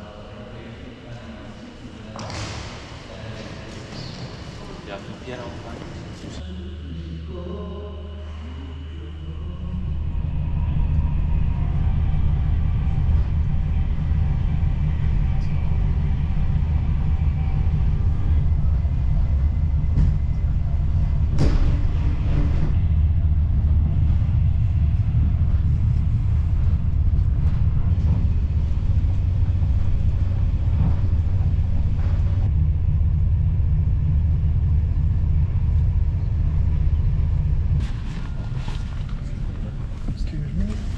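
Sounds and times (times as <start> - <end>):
train rumbling: 0.0 - 40.9.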